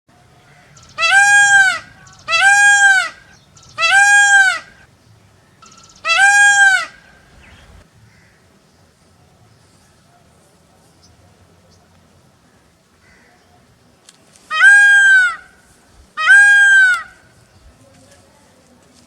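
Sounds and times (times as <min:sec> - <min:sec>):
peacock calling: 0:00.2 - 0:08.4, 0:14.5 - 0:15.6, 0:16.2 - 0:17.5.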